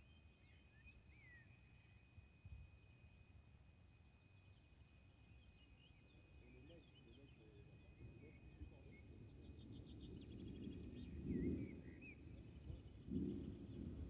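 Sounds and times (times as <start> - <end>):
distant thunder rumbling: 12.7 - 14.0.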